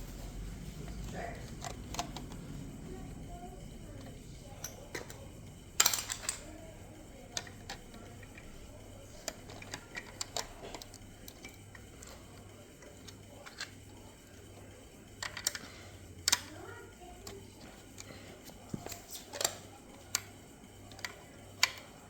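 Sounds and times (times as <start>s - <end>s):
plastic pieces clicking: 4.0s - 13.8s, 15.2s - 16.6s, 18.7s - 22.0s.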